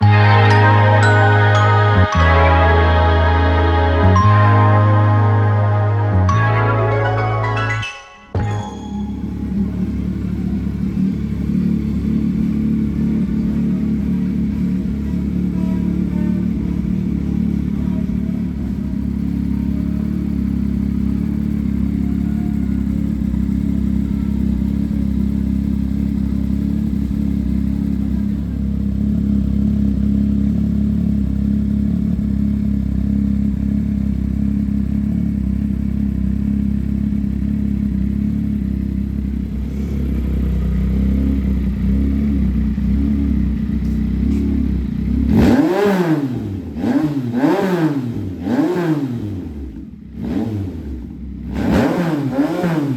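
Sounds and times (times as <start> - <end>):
motorcycle engine idling: 9.2 - 45.9, 49.5 - 50.2, 50.9 - 51.6.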